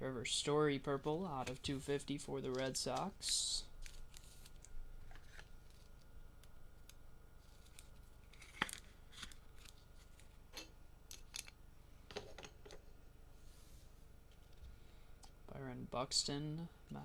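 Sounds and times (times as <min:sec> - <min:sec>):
card pack clicks and rustles: 0:02.4 - 0:06.1, 0:07.4 - 0:10.4.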